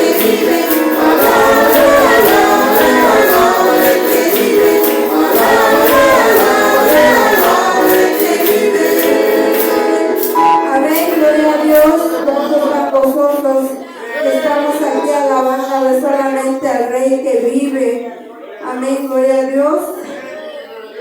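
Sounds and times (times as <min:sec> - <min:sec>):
tambourine beat: 0:00.0 - 0:12.0
congregation singing praise song: 0:00.0 - 0:14.9.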